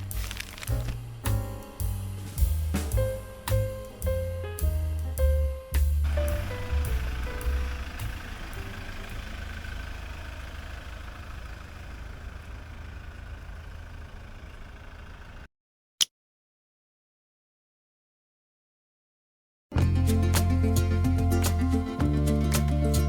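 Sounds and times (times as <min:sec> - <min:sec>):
music: 0:00.0 - 0:08.1, 0:19.7 - 0:23.0
vehicle engine rumbling: 0:00.0 - 0:15.5.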